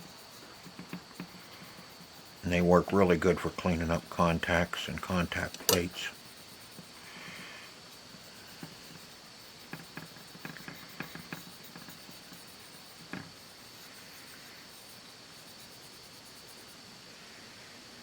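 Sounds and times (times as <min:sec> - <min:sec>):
clicks and taps of small tools: 0:05.5 - 0:06.0.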